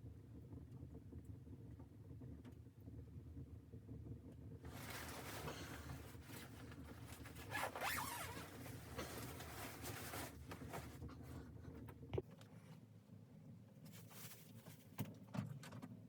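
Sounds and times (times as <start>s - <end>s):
zipper being pulled: 7.1s - 10.4s.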